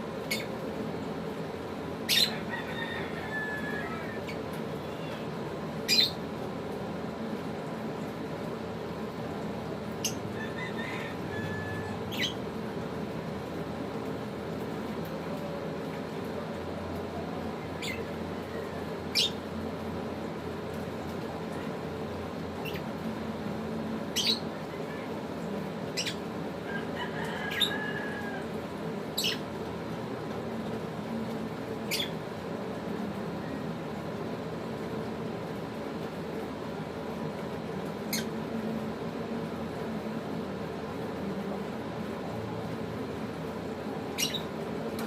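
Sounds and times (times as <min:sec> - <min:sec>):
low background hum: 0:00.0 - 0:45.0
lovebirds chirping: 0:11.4 - 0:12.4, 0:44.1 - 0:44.5.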